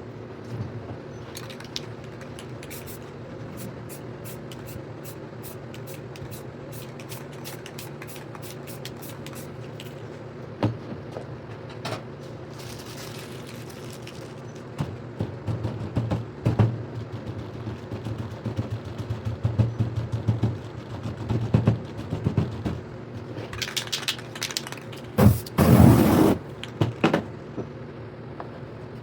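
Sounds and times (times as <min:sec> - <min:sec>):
spray paint can hissing: 0:02.1 - 0:10.0, 0:25.2 - 0:26.4.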